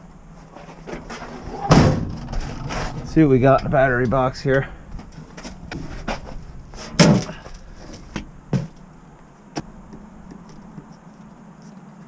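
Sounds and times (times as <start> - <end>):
metal box knocks and clunks: 0.8 - 8.9.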